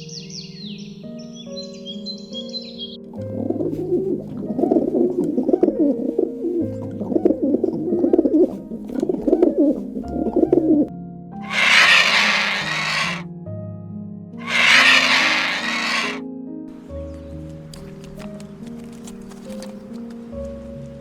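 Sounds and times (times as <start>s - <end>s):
loud hissing rush: 11.4s - 13.2s, 14.4s - 16.2s
pigeons cooing: 11.4s - 13.2s, 14.4s - 16.2s.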